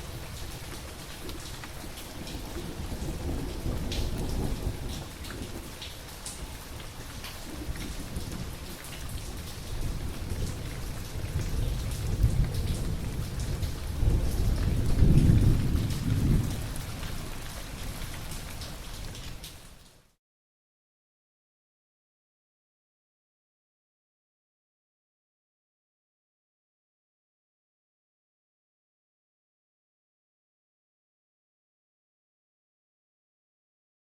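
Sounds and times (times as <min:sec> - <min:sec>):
rolling thunder: 0:00.0 - 0:19.2
raindrops tapping: 0:00.0 - 0:20.0
steady rain falling: 0:00.0 - 0:20.2.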